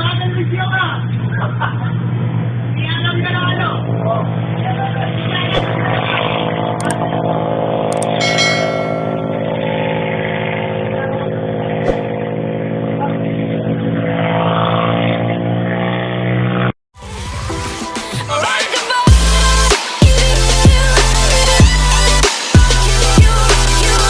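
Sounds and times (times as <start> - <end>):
sharp clicks: 6.8 - 7.0, 7.9 - 8.2
metallic clang: 8.0 - 9.7.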